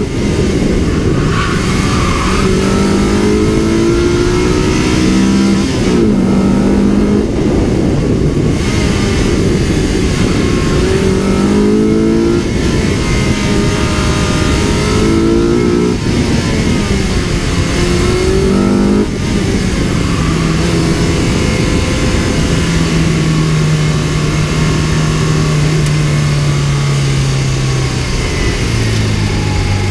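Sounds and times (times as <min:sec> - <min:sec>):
car engine revving through gears: 0:00.0 - 0:29.9.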